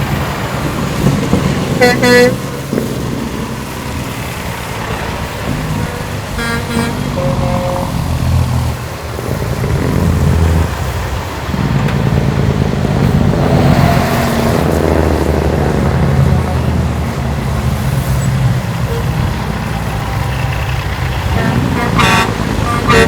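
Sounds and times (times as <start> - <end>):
truck engines rumbling: 0.0 - 23.0
horn toots: 1.8 - 2.7, 5.5 - 8.8, 18.9 - 23.0.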